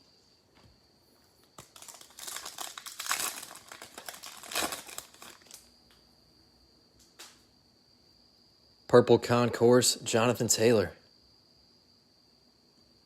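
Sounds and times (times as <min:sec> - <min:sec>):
plastic wrapper crinkling: 0:01.6 - 0:05.7.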